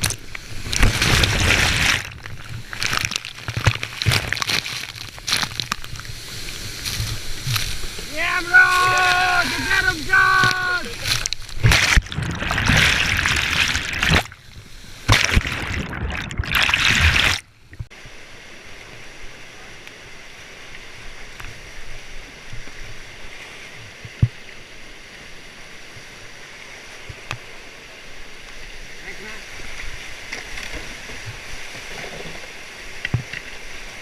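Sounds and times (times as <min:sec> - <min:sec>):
rushing whitewater: 0:00.0 - 0:15.5.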